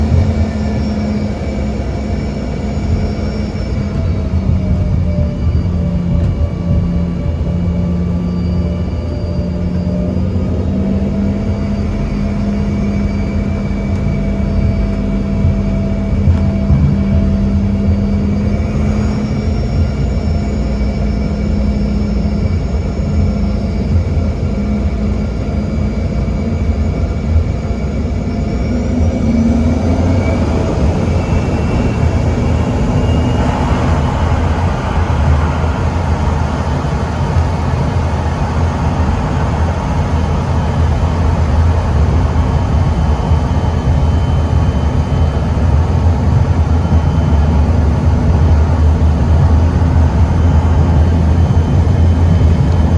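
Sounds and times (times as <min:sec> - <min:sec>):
jet engines humming and whining: 0:00.0 - 0:52.9.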